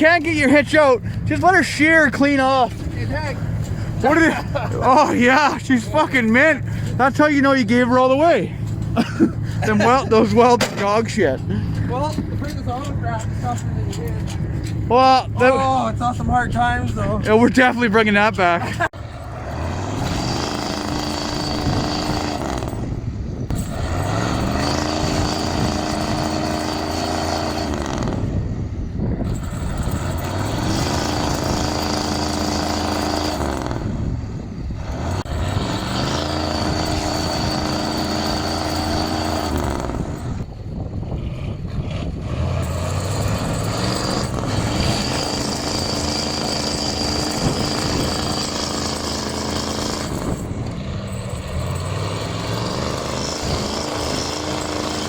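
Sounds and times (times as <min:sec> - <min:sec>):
truck diesel engine under load: 0:00.0 - 0:55.0.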